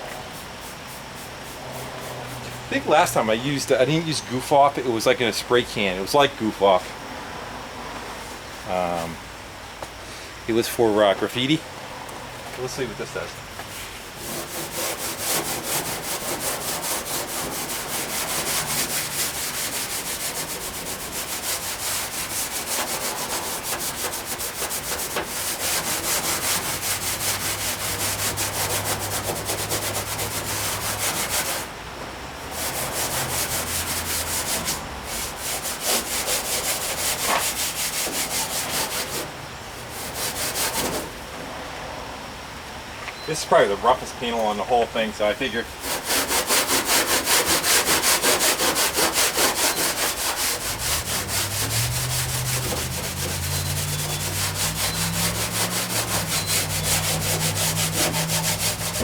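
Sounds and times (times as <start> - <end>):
steel wool scrubbing metal: 13.7 - 31.7, 32.5 - 39.3, 45.7 - 59.0.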